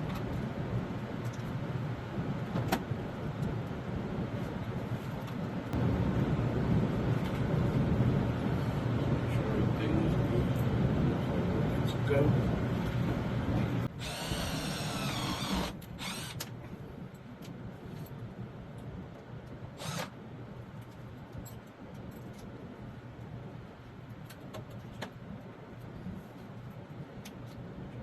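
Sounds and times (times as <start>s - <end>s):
air conditioner humming: 5.7s - 17.1s.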